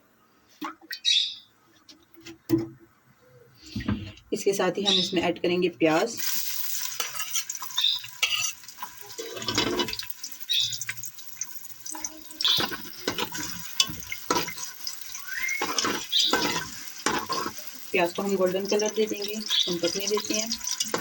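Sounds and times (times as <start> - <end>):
onions sizzling in hot oil: 6.1 - 21.0
oil crackles: 6.2 - 21.0.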